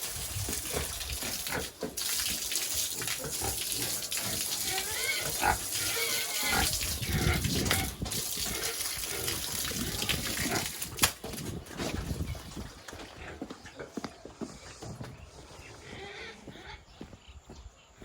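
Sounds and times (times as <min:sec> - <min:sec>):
pigs grunting and squealing: 0:00.2 - 0:02.1, 0:02.8 - 0:11.0, 0:13.0 - 0:14.0, 0:15.6 - 0:16.9.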